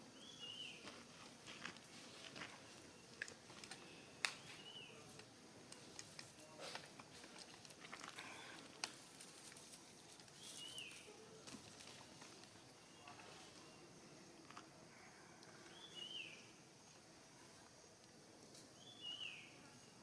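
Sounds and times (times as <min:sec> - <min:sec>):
faint clicks and rustles: 0:00.8 - 0:14.8.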